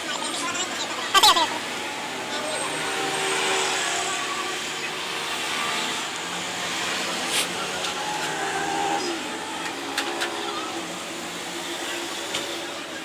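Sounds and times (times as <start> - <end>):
small motor whirring: 0.4 - 13.0.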